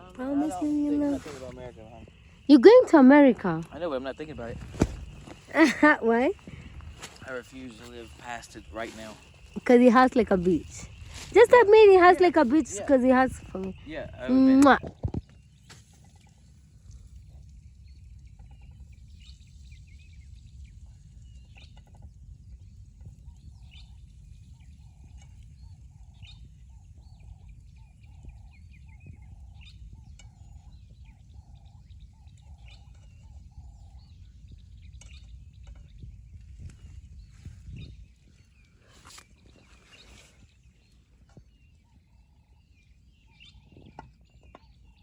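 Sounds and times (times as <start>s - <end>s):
high bird chirps: 0.0s - 14.9s
steady low rumble: 0.0s - 14.9s
low repeated bird notes: 0.0s - 15.7s.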